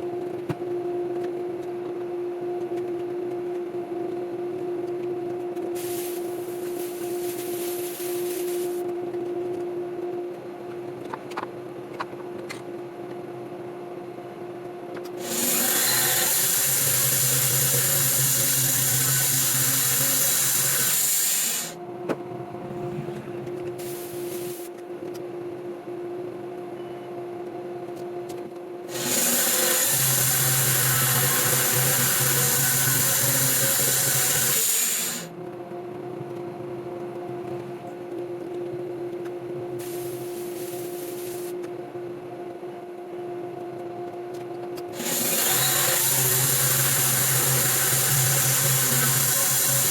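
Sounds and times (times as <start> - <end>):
steady machine hum: 0.0 - 49.9
saw blade cutting log: 15.2 - 21.8, 28.9 - 35.3, 45.0 - 49.9.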